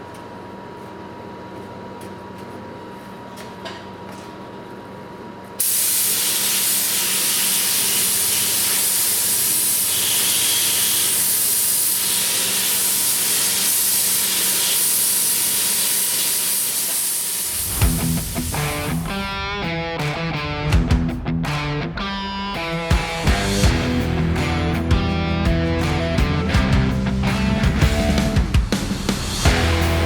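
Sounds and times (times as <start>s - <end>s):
spray paint hissing: 5.6s - 19.3s.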